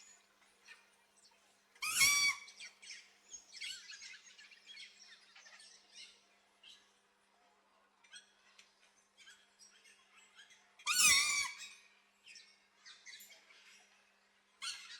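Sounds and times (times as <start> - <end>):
small birds chirping: 0.0 - 6.9
macaw squawk: 1.8 - 2.6, 10.9 - 11.7.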